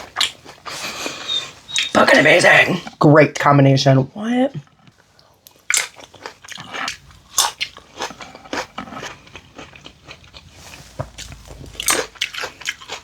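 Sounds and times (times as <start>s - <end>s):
person biting and chewing food: 0.0s - 2.0s, 4.6s - 13.0s.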